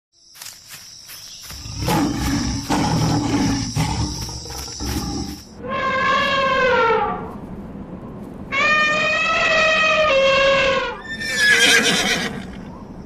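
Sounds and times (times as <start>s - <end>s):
lion roaring: 1.6s - 6.2s
higher-pitched drawn-out animal call: 2.8s - 7.3s, 8.5s - 12.6s.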